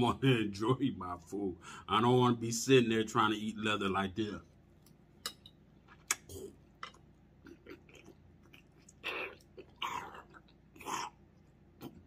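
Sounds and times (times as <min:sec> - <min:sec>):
chewing with wet mouth clicks: 0:04.8 - 0:12.0.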